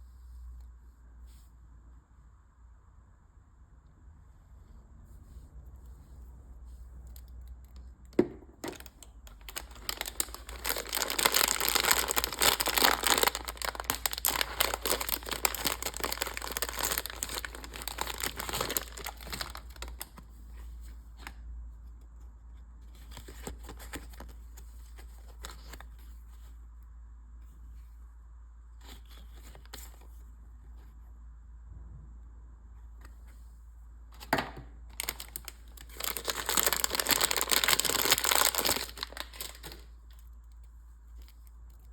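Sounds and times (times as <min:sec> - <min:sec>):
wrapper tearing and crinkling: 0:08.7 - 0:20.2, 0:34.9 - 0:40.2.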